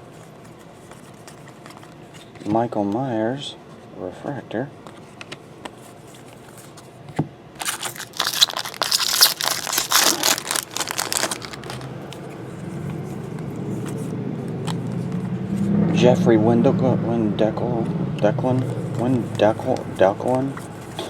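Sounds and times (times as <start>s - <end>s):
low steady hum: 0.0s - 21.0s
foil wrapper tearing and crinkling: 7.6s - 11.9s.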